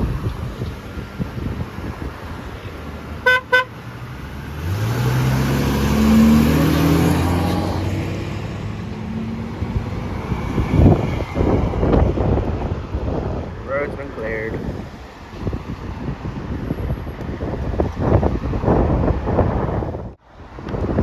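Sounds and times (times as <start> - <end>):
truck engine rumble passing: 0.0 - 18.8
vehicle horn toots: 3.2 - 3.8.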